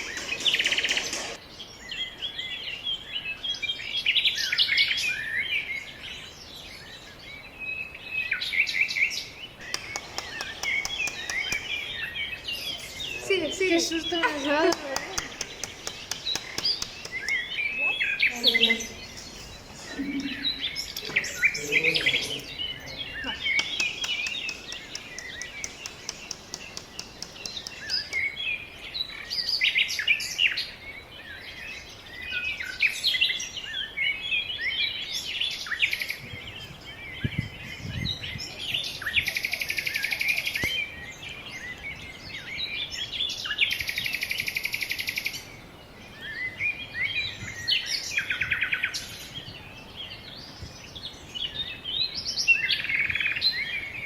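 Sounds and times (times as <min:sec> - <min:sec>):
birds chirping and singing: 0:00.0 - 0:54.0
dry buzzing trills: 0:09.6 - 0:28.4.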